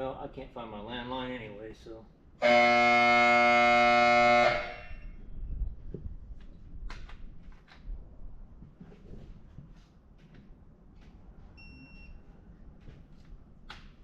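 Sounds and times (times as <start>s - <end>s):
loud steady horn blast: 2.4s - 5.2s.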